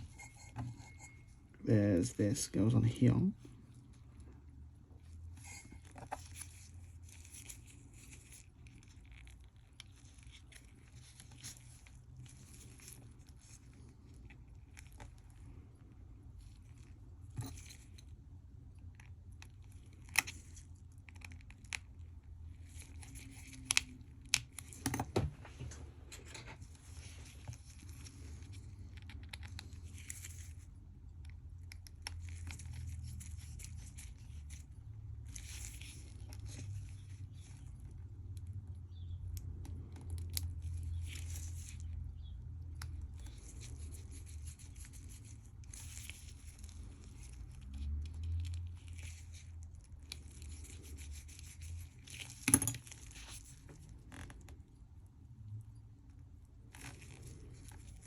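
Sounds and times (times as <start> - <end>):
light scraping and rustling: 0.0 - 4.4, 5.0 - 18.2, 22.5 - 30.8, 32.2 - 39.1, 56.7 - 58.0.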